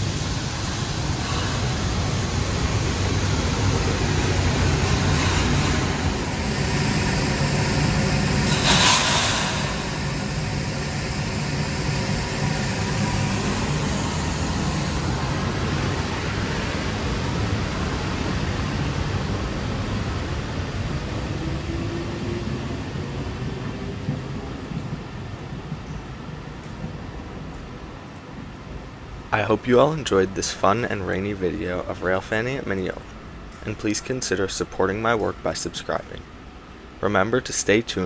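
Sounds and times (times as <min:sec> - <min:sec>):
electric train rumbling: 0:00.0 - 0:38.0
short loud hiss: 0:08.4 - 0:10.4.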